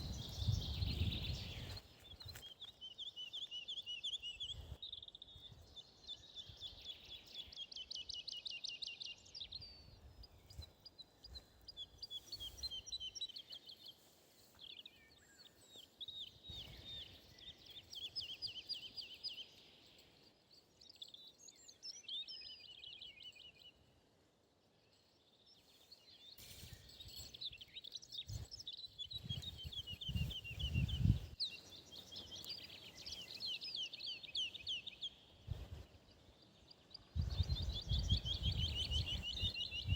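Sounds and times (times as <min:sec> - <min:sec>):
songbirds trilling: 0:24.8 - 0:39.9.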